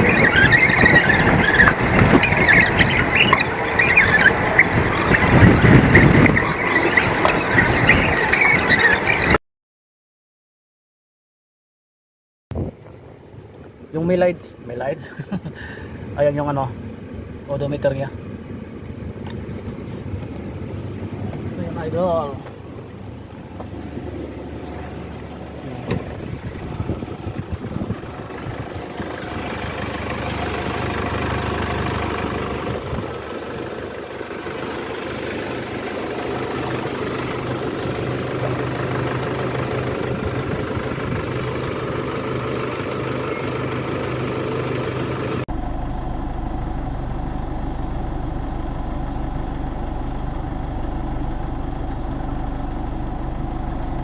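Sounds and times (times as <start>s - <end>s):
vehicle engine idling: 0.0s - 9.4s, 12.6s - 54.0s
deep dull hum: 22.4s - 33.6s, 45.5s - 54.0s.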